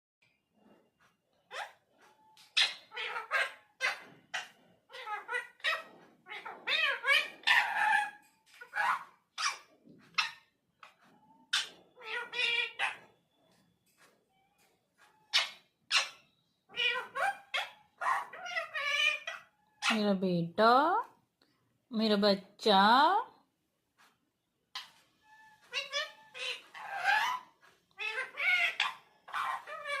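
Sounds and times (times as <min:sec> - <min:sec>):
parrot chattering: 0:01.5 - 0:13.1, 0:15.2 - 0:20.0, 0:24.7 - 0:30.0
parakeet mimicking speech: 0:02.6 - 0:03.6, 0:16.7 - 0:21.1, 0:28.0 - 0:30.0.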